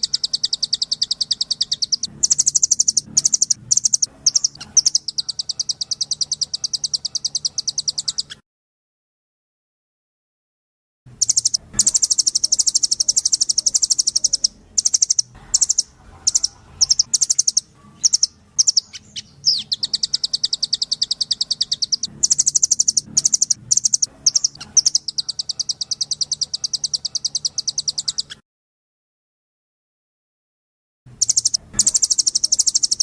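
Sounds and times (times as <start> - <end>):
bird calling in rapid trills: 0.0 - 8.4, 11.2 - 28.4, 31.2 - 33.0.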